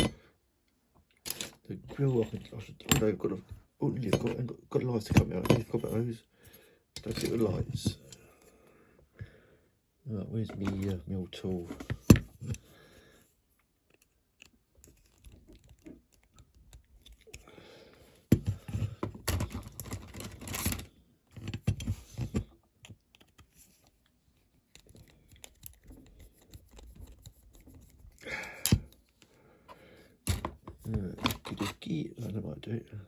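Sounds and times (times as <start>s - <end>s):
hand tool scraping toy car: 30.8s - 31.9s.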